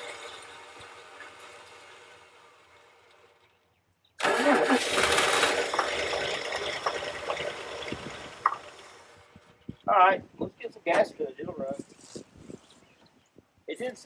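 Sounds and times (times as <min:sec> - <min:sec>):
starter motor cranking: 0:00.0 - 0:09.5
pickup engine running: 0:04.2 - 0:09.6.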